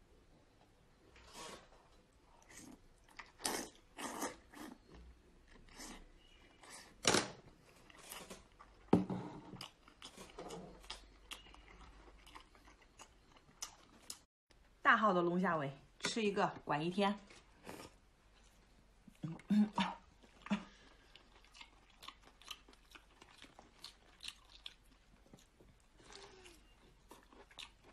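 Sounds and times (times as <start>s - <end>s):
person chewing seafood: 2.3s - 6.1s, 9.5s - 14.3s, 20.2s - 27.9s.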